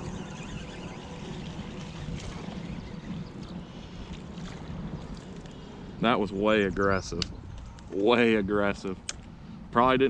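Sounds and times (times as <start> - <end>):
rushing sloshing water: 0.0 - 6.0
wind buffeting microphone: 0.0 - 10.0.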